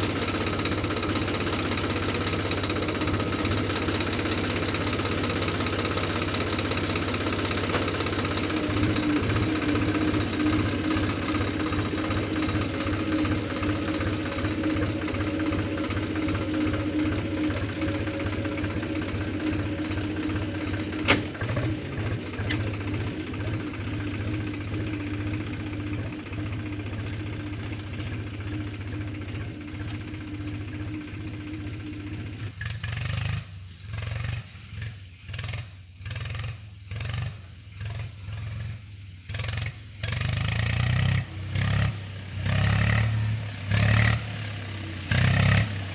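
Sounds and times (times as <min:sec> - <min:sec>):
tractor engine knocking: 0:00.0 - 0:36.5.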